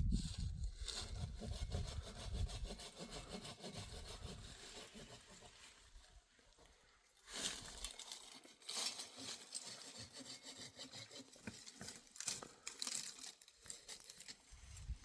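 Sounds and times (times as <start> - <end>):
rough rasping strokes: 0.2 - 6.7, 7.3 - 13.0.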